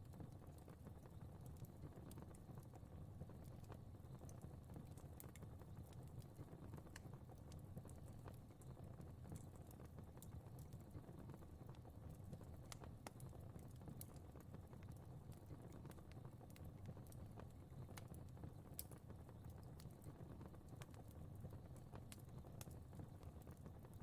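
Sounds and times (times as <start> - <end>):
fire crackling and popping: 0.0 - 24.0.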